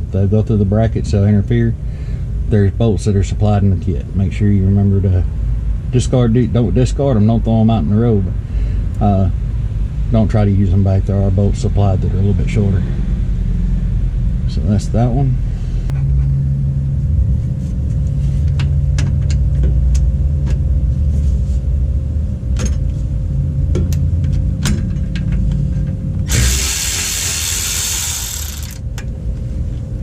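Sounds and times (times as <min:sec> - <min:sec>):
steady low hum: 0:00.0 - 0:30.0
hand ratchet clicking: 0:26.3 - 0:28.8
loud hiss: 0:26.3 - 0:28.8.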